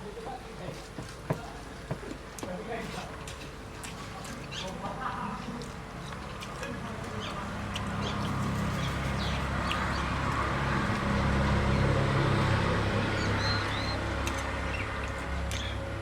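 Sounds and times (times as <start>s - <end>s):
bird chirps: 13.0s - 15.8s.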